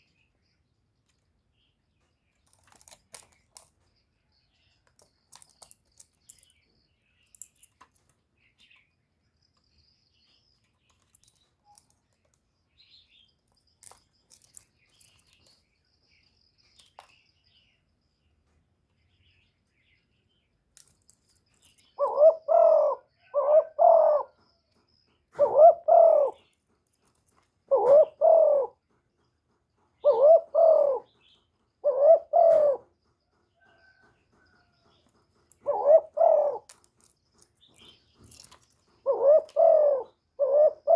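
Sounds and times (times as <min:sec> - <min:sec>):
dove cooing: 0:21.9 - 0:24.6, 0:25.3 - 0:26.5, 0:27.6 - 0:29.0, 0:30.0 - 0:36.8, 0:38.3 - 0:40.9.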